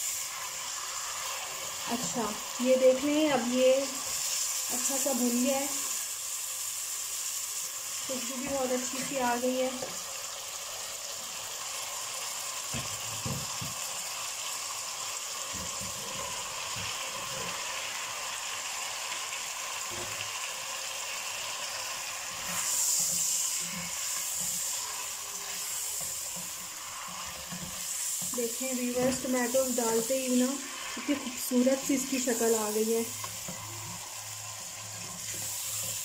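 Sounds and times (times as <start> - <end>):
chicken sizzling in oil: 0.0 - 36.0
spatula scraping wok: 15.5 - 36.0.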